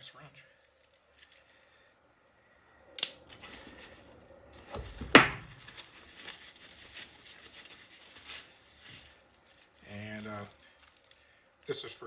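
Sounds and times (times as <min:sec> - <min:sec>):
packaging rustling: 0:00.5 - 0:01.7, 0:03.2 - 0:12.0
loud knock on bench: 0:05.2 - 0:05.4.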